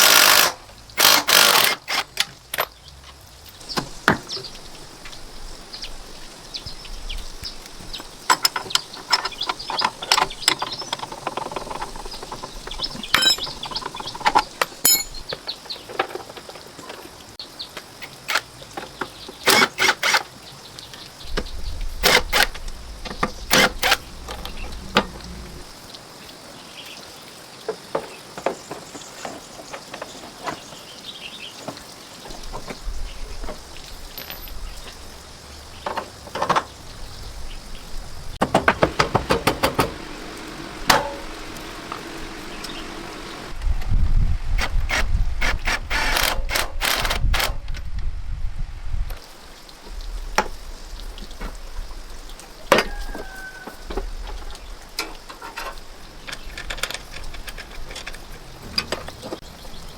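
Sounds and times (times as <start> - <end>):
faint steady hiss: 0.0 - 59.9
sharp clicks and knocks: 8.2 - 17.2, 35.8 - 36.8, 38.4 - 40.0, 40.9 - 42.8, 53.9 - 59.5.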